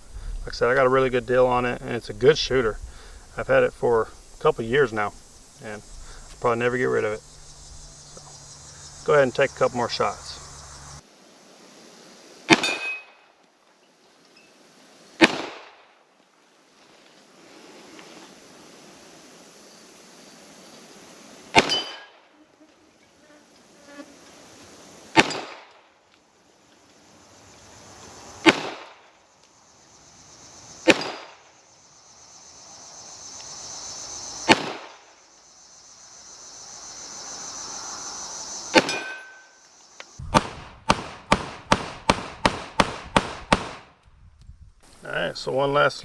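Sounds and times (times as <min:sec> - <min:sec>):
high-pitched insect drone: 0:00.0 - 0:11.0, 0:29.6 - 0:30.8, 0:31.6 - 0:34.5, 0:35.1 - 0:40.2, 0:44.8 - 0:46.0
pistol shots: 0:40.2 - 0:43.9
quieter gunshot cracks: 0:40.2 - 0:43.9.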